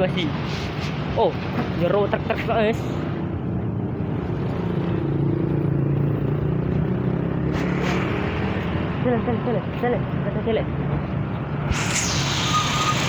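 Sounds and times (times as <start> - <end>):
short hiss: 11.7 - 13.0.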